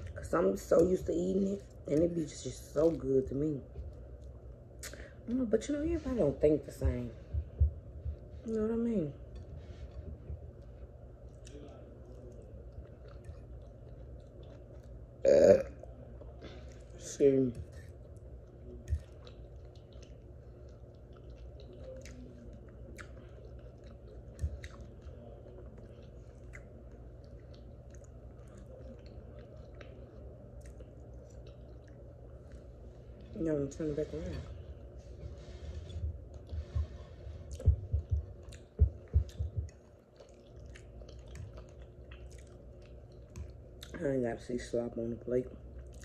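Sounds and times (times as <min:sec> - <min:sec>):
wet mouth clicks and smacks: 0:04.2 - 0:05.0
wet mouth clicks: 0:04.8 - 0:05.0
person chewing soft food: 0:09.2 - 0:33.4, 0:34.5 - 0:44.0, 0:45.6 - 0:46.0.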